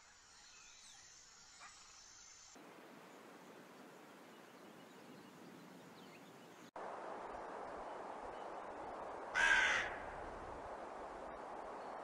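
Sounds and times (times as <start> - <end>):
steady background hiss: 0.0 - 12.0
rook cawing: 9.3 - 10.4.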